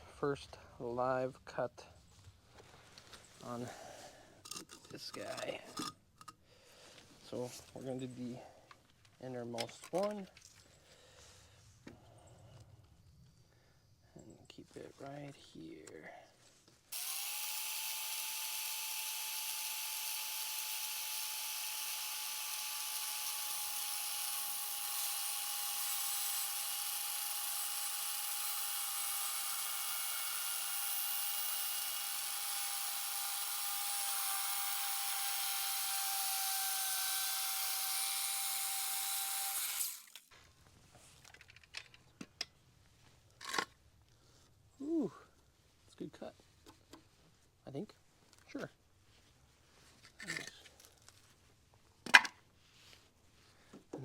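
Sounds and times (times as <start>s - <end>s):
power saw cutting wood: 16.9s - 40.3s.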